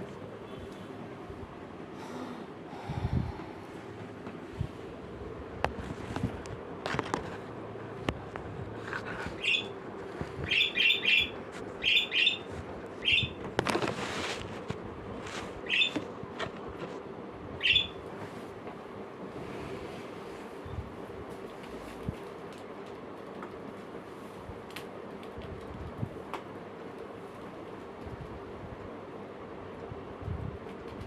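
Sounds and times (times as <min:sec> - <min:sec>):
parrot chirping: 0:09.4 - 0:09.7, 0:10.5 - 0:13.4, 0:15.6 - 0:16.0, 0:17.6 - 0:18.0.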